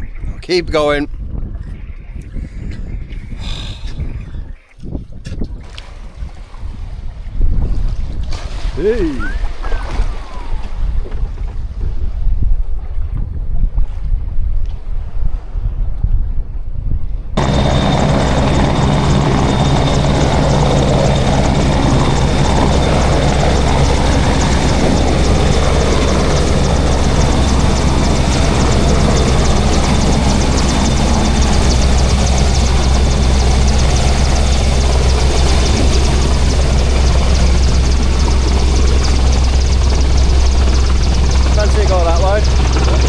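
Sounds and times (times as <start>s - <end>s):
boat engine droning: 17.4s - 43.0s.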